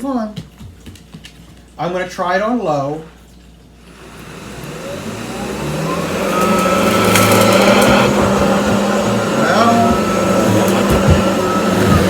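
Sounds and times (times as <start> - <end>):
cordless vacuum motor whine: 3.9 - 12.0.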